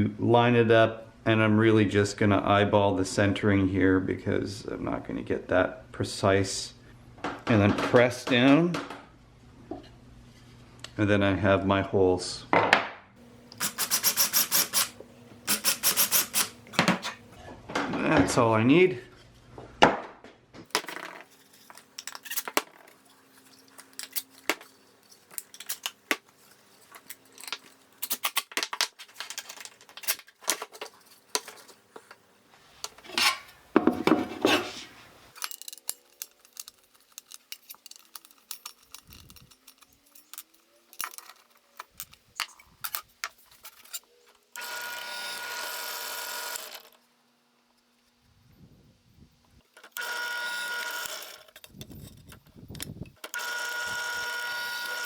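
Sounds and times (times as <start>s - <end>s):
scraping: 32.8s - 44.1s.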